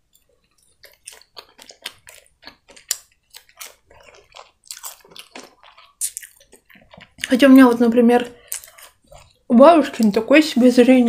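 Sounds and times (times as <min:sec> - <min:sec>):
chewing mouth clicks: 0:00.1 - 0:07.4, 0:08.4 - 0:09.5.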